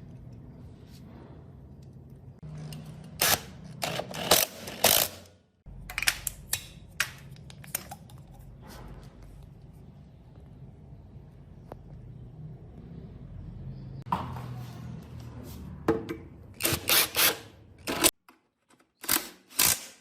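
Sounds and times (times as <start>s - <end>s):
tools clicking on metal parts: 18.7s - 20.0s.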